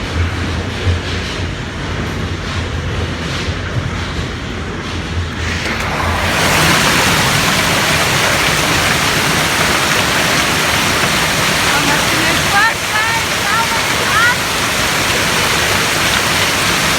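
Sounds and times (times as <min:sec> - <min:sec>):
hail and heavy rain pelting: 0:05.3 - 0:16.9.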